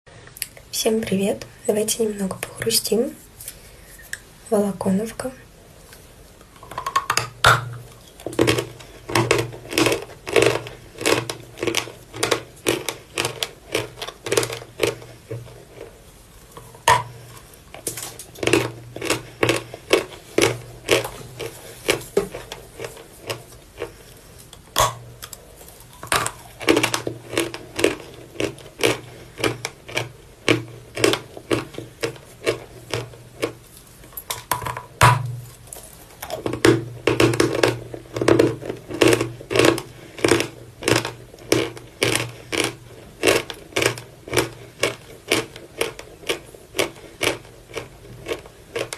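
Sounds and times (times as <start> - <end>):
chalk being crunched and chewed: 37.5 - 48.9.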